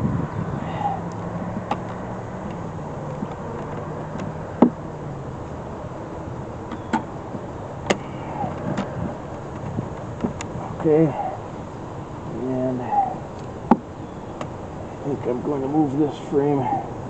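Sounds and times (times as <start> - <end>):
honeybees buzzing: 0.0 - 17.0
hive frame clicks and knocks: 1.4 - 4.8, 6.6 - 10.6.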